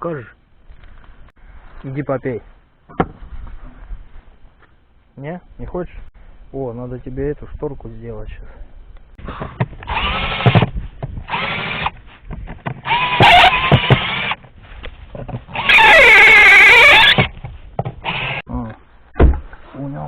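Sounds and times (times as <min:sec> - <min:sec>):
power drill whining: 0:09.2 - 0:12.0, 0:12.8 - 0:14.4, 0:15.5 - 0:17.4, 0:18.0 - 0:18.4.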